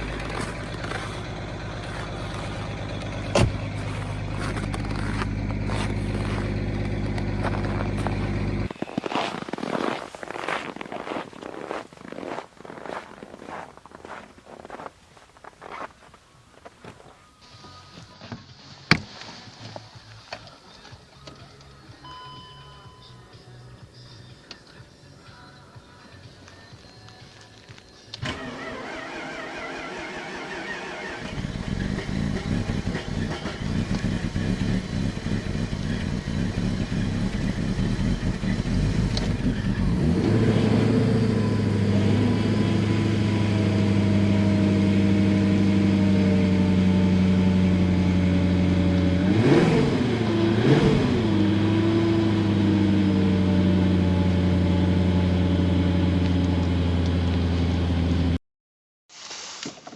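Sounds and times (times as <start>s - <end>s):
diesel engine starting and idling: 0.0s - 9.5s, 28.1s - 58.4s
diesel engine revving: 0.0s - 10.5s, 28.1s - 58.4s.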